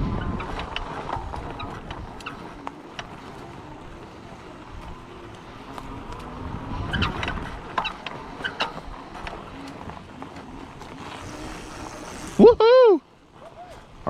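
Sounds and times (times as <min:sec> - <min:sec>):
tyres rumbling on rough ground: 0:00.0 - 0:14.0
short squeaks and clicks: 0:06.8 - 0:08.8.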